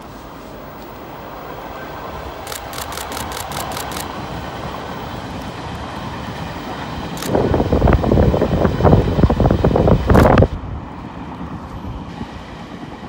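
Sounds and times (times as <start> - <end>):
train approaching: 0.0 - 13.0
sharp ticks: 2.4 - 4.2, 10.1 - 10.4.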